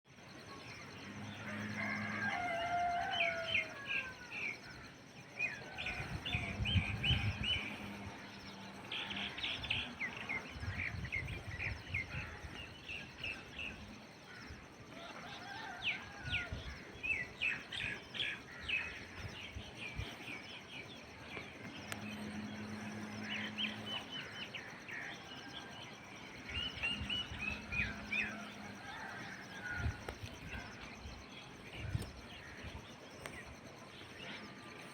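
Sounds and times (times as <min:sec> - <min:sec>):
low hum: 0:16.6 - 0:34.9.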